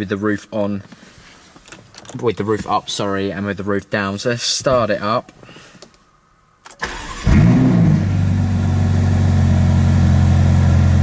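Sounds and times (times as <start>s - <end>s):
ignition click: 6.6s - 7.3s
car engine starting and idling: 6.7s - 11.0s.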